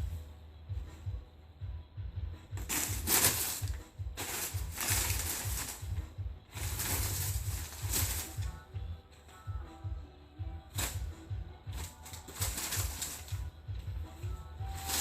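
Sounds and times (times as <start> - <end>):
paper rustling and crinkling: 2.6 - 8.5, 11.8 - 13.4, 14.6 - 15.0.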